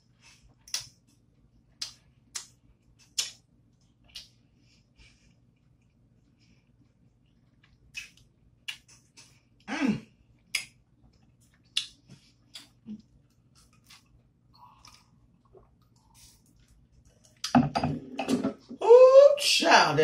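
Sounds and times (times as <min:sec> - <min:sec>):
person chewing with lip-smacking: 0:00.3 - 0:01.0, 0:01.7 - 0:04.4, 0:06.7 - 0:09.7, 0:10.4 - 0:17.5.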